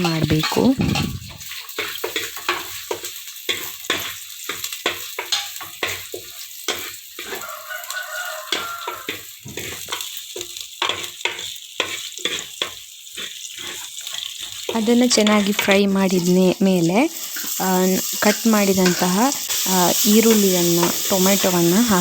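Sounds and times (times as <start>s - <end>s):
spatula scraping a pan: 0.0s - 16.4s
food sizzling in hot oil: 0.0s - 22.0s.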